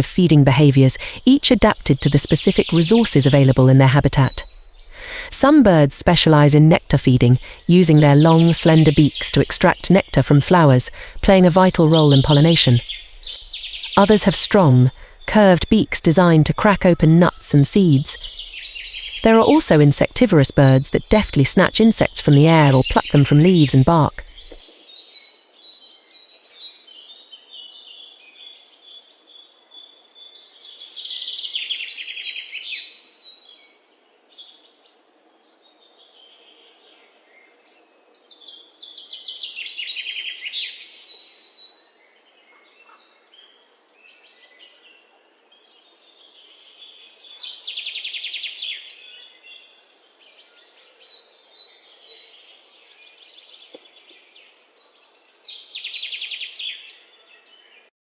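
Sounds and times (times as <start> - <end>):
high bird chirping: 0.0 - 24.6
bird trilling: 7.3 - 24.6.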